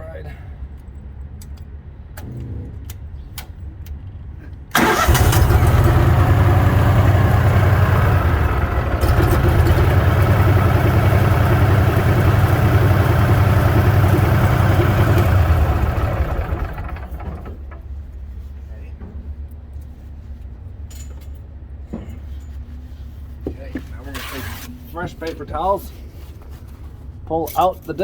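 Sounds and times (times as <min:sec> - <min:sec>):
engine starting and running: 0:04.7 - 0:18.0.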